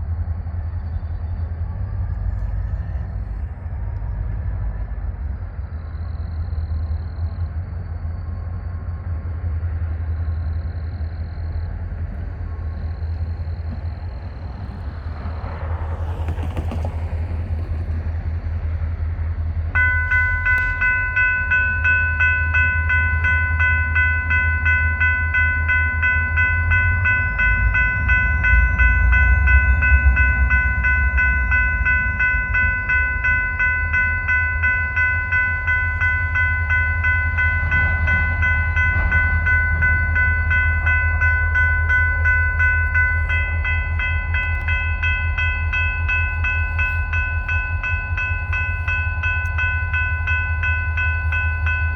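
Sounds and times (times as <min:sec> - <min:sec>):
diesel locomotives rumbling: 0:00.0 - 0:51.9
bell ringing steadily: 0:19.8 - 0:51.9.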